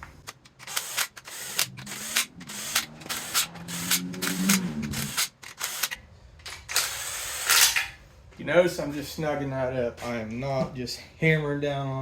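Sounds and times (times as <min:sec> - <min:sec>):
hand tools clicking on metal: 0:00.2 - 0:06.0.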